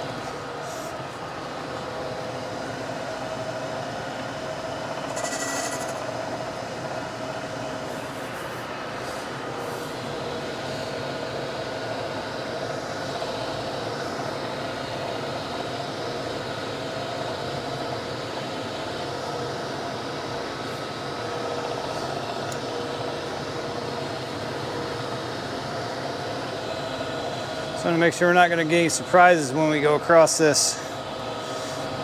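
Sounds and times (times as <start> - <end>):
surface grinder humming: 5.0 - 6.2.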